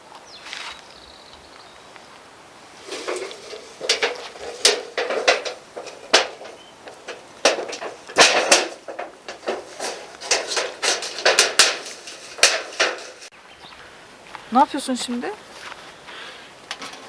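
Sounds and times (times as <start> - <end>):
shovel scraping soil: 2.8 - 6.1.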